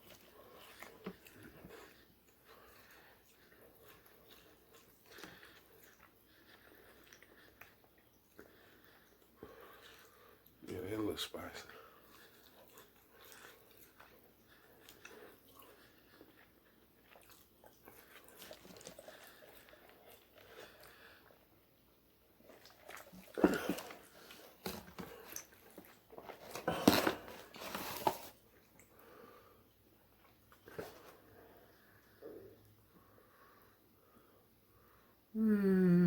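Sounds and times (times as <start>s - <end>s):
chewing and biting: 0.0s - 10.6s, 11.8s - 21.6s, 22.2s - 29.1s.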